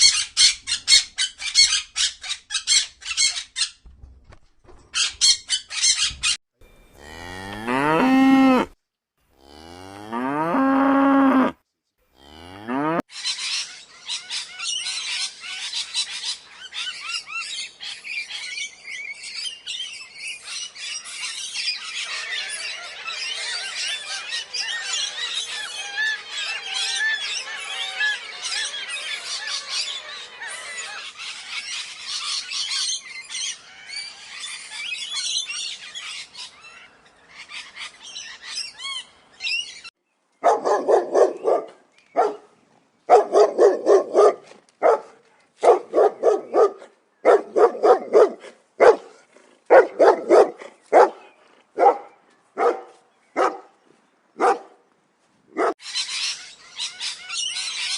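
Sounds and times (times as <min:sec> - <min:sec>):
small birds chirping: 0:00.0 - 0:08.0, 0:11.8 - 0:42.8
dog barking: 0:40.4 - 0:42.5, 0:43.1 - 0:53.7, 0:54.4 - 0:54.8, 0:55.6 - 0:55.8.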